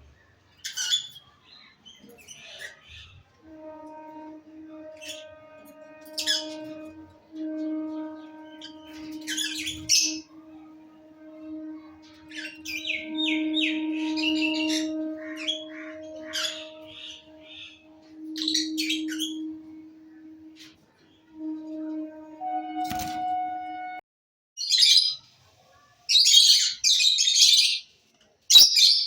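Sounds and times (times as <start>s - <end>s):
lovebirds chirping and squawking: 0.5s - 3.2s, 5.0s - 7.0s, 7.6s - 10.4s, 11.4s - 20.8s, 28.5s - 29.0s
background music tone: 3.4s - 24.0s.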